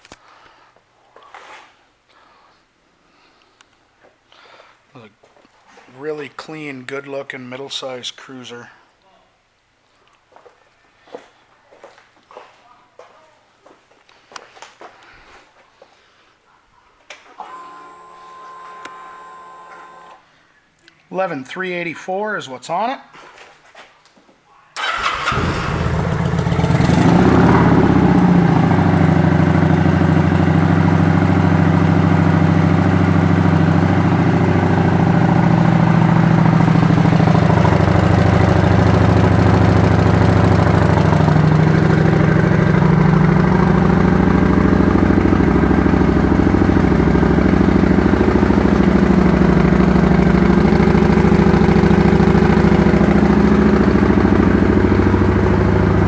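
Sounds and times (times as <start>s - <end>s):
motorcycle engine starting and idling: 24.8s - 56.0s.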